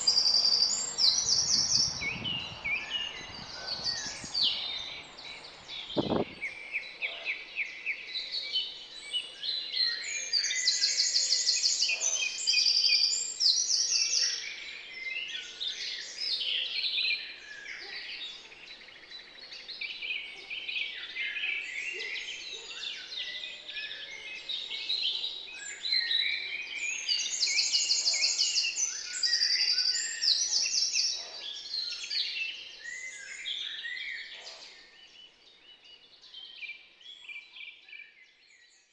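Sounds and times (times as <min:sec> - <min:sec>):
high rapid bird trills: 0:00.0 - 0:06.4
garden birds singing: 0:00.0 - 0:38.9.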